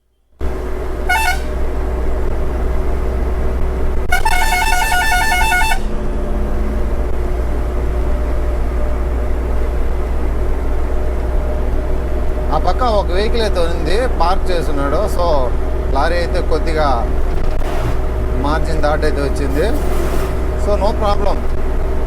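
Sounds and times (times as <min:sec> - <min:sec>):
truck horn: 0:00.4 - 0:02.0, 0:04.0 - 0:07.0
truck diesel engine drone: 0:00.4 - 0:22.0.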